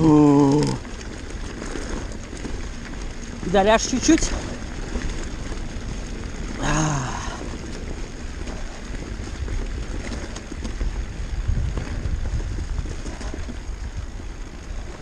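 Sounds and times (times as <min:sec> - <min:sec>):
bike rattling over stones: 0:00.0 - 0:15.0
wind rumble on microphone: 0:00.0 - 0:15.0.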